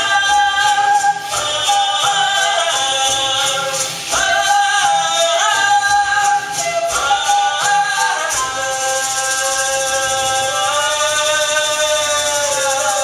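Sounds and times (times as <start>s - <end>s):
music: 0.0s - 13.0s.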